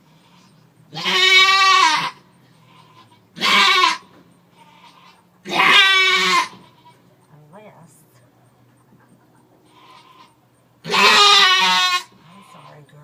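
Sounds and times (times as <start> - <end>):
goat bleating loudly: 0.3 - 7.1, 9.7 - 12.8.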